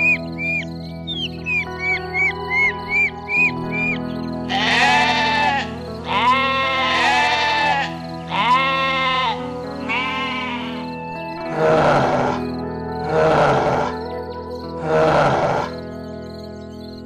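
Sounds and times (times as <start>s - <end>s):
background music: 0.0s - 17.0s
animal bleating: 4.5s - 14.0s, 14.8s - 15.8s
rough noisy animal call: 4.5s - 14.0s, 14.8s - 15.9s.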